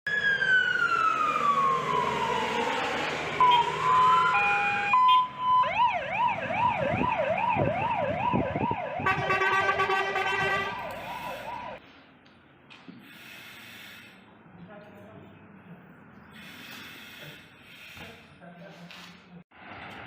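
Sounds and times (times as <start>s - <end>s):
fire engine siren: 0.1s - 11.8s.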